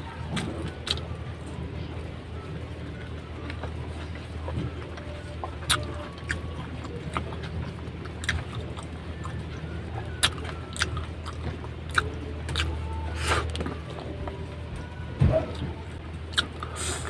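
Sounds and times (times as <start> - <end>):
steady low hum: 0.0 - 17.0
crunchy chewing: 0.1 - 1.1, 3.0 - 14.4, 16.3 - 17.0.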